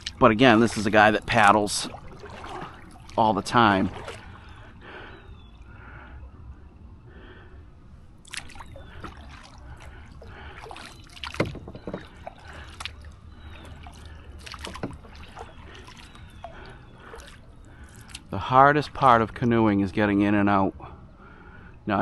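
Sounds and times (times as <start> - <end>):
paddle splashing in water: 0.0 - 4.8, 8.2 - 18.3.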